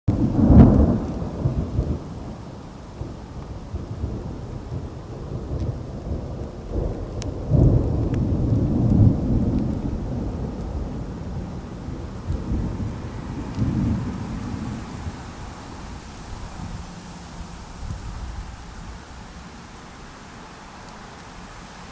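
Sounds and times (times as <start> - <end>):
thunder rumbling: 0.1 - 17.0
steady rain: 0.1 - 21.9.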